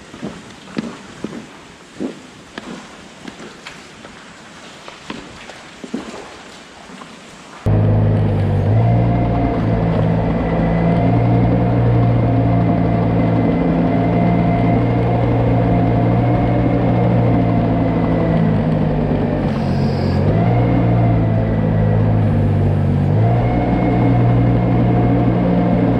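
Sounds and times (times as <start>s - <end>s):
engine running steadily: 7.6s - 25.9s.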